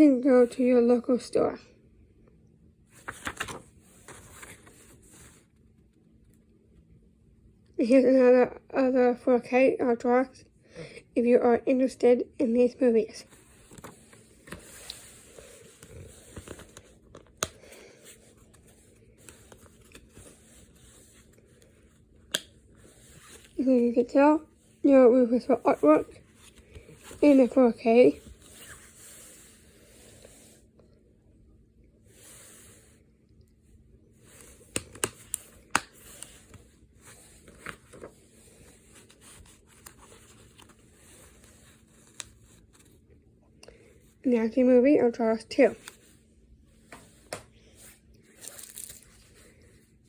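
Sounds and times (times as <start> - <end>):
paper rustling: 2.9 - 5.4, 13.3 - 23.7, 34.2 - 43.0, 46.9 - 49.7
plastic case rustling and scraping: 13.2 - 17.4.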